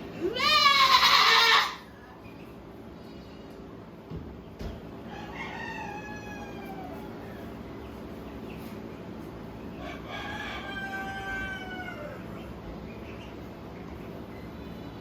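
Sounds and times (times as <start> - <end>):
goat screaming: 0.2 - 1.9.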